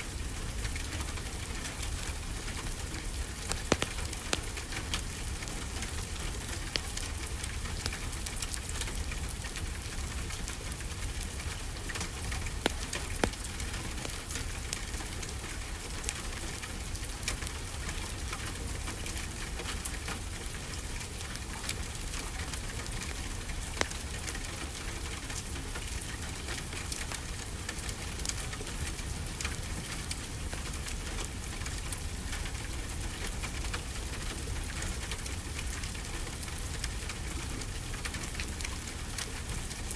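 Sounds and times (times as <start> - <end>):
steady rainfall: 0.0 - 39.9
wood fire crackling: 0.1 - 39.9
sharp pops: 3.4 - 7.2, 12.6 - 14.8.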